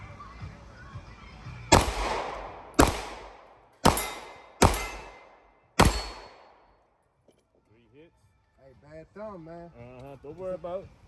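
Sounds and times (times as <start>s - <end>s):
handgun shots echoing: 1.7s - 6.7s.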